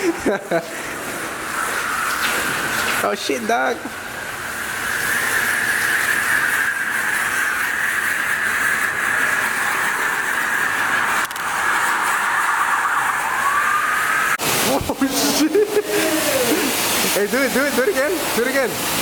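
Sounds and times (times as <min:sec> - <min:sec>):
pressure washer spraying water: 0:00.0 - 0:19.0.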